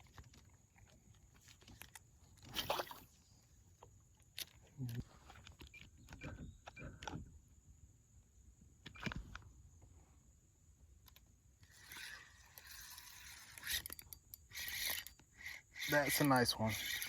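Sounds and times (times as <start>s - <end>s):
fishing reel being cranked: 11.6s - 17.0s.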